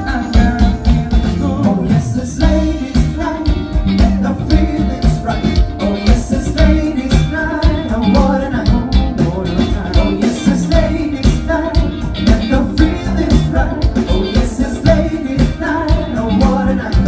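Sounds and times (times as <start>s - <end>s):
band playing: 0.0s - 17.0s
person singing: 0.0s - 17.0s.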